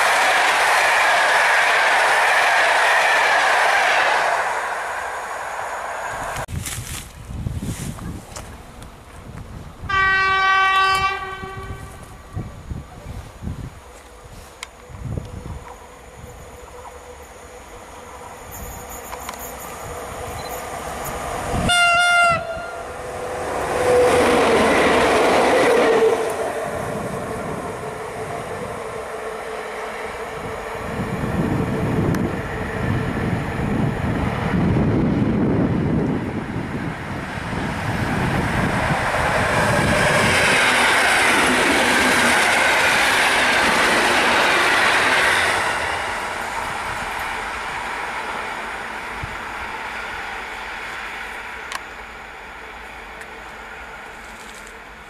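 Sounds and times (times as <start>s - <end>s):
train wheels rushing on rails: 0.0s - 55.0s
electric train horn blast: 9.8s - 12.1s, 21.5s - 23.0s.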